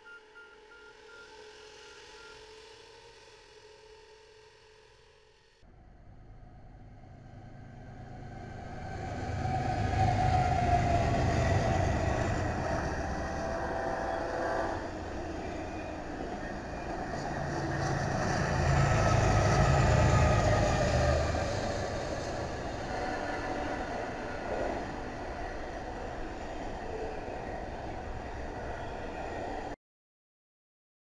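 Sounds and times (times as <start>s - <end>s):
freight cars rolling past: 6.1s - 29.8s
diesel locomotive rumble: 6.3s - 28.9s.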